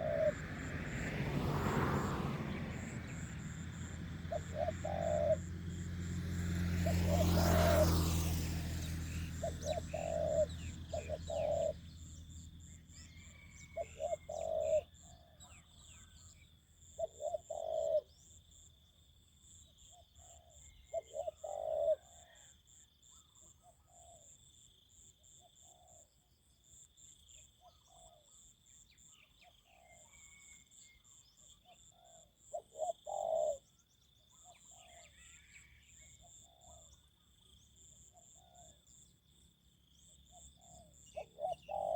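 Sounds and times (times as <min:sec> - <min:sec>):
fainter doves answering: 0:00.0 - 0:00.5, 0:04.3 - 0:05.4
dove cooing: 0:00.0 - 0:00.8, 0:02.5 - 0:05.7, 0:06.6 - 0:11.9, 0:13.2 - 0:15.0, 0:17.0 - 0:18.2, 0:20.2 - 0:22.4, 0:32.1 - 0:33.7, 0:40.4 - 0:41.9.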